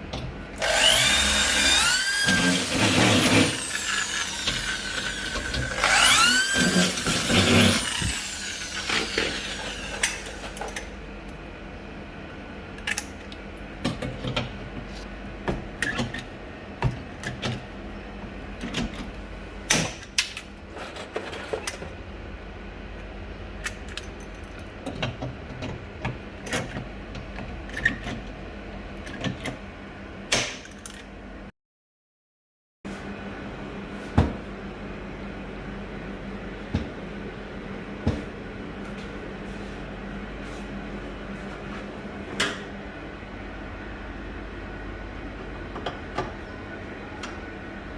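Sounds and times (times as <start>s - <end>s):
power tool whirring: 0.6s - 10.7s.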